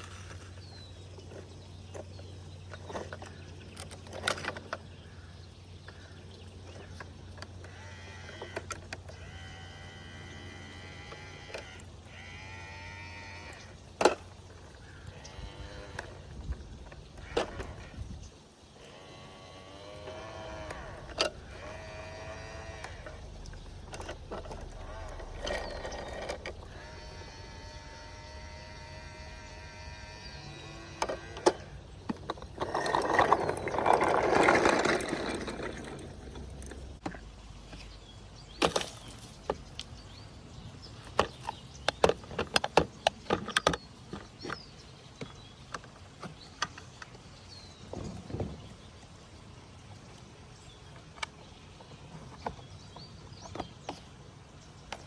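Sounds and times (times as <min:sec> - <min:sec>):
toy mechanism clicking and knocking: 0:06.9 - 0:12.7, 0:18.8 - 0:37.0.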